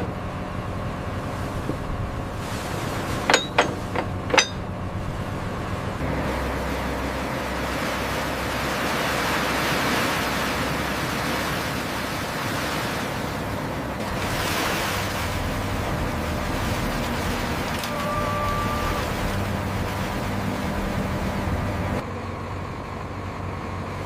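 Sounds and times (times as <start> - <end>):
steady machine hum: 0.0 - 22.0
rushing sea-like noise: 0.6 - 22.0
quick metallic clanks: 3.2 - 4.7.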